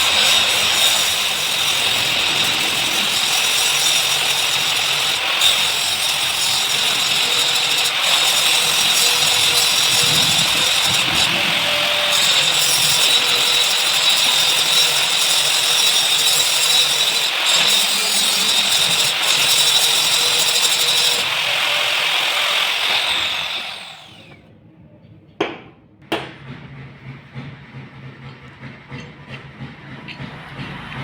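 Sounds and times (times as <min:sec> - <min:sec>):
power tool running: 0:00.0 - 0:24.4
sharp knocks: 0:25.4 - 0:26.7.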